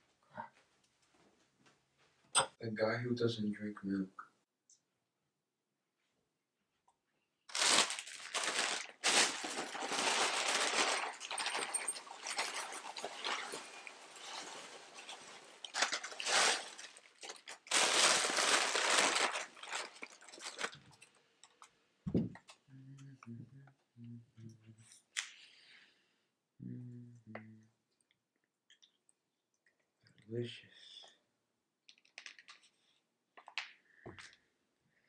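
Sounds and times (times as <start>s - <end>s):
cereal pouring into a bowl: 7.5s - 20.7s
plastic bag crinkling: 7.5s - 21.7s.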